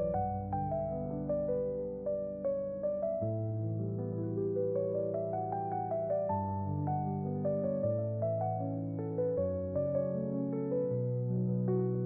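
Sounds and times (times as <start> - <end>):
slow soft piano music: 0.0 - 12.0.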